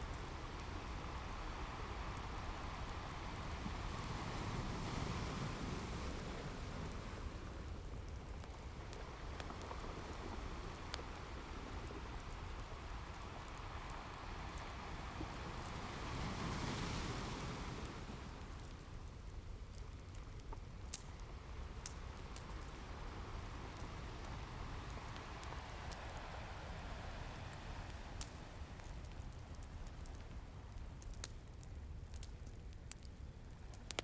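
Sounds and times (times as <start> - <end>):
wood fire crackling: 0.0 - 34.0
ocean waves breaking: 9.0 - 18.8.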